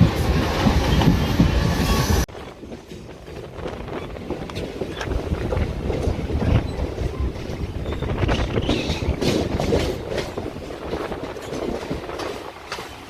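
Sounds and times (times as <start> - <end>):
train rumbling: 0.0 - 13.0
wheels clicking over rail joints: 2.3 - 13.0.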